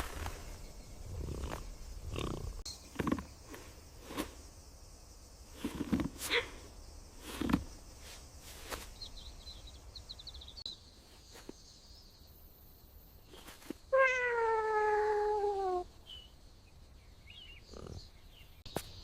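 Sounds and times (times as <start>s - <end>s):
cat meowing: 14.0s - 15.8s.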